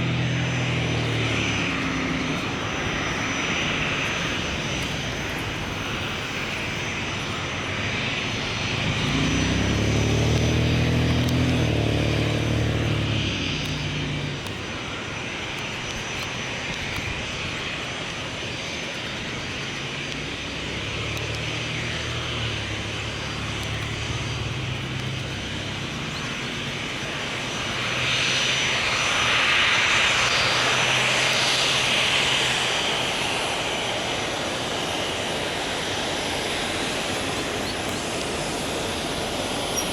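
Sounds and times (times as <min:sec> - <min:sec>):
low hum: 0:00.0 - 0:17.7
hissing rush: 0:00.0 - 0:39.9
jet engines running at low power: 0:00.0 - 0:39.9.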